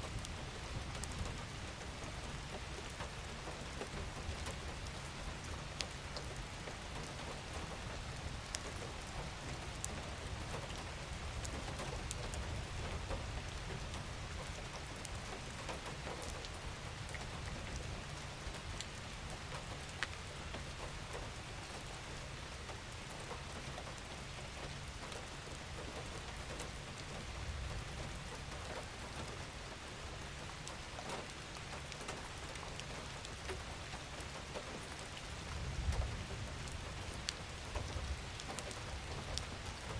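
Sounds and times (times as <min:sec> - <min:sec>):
gentle rain falling: 0:00.0 - 0:39.9
raindrops ticking: 0:22.6 - 0:39.9.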